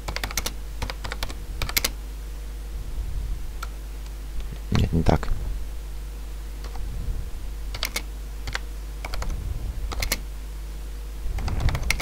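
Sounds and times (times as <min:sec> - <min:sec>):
steady low hum: 0:00.0 - 0:12.0
keyboard key clicks: 0:07.7 - 0:09.3, 0:09.9 - 0:10.2, 0:11.4 - 0:12.0.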